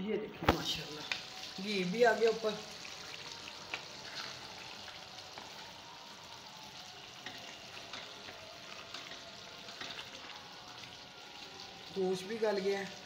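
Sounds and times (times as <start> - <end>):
food sizzling in a pot: 0.4 - 13.0
wooden spoon stirring: 7.2 - 11.1.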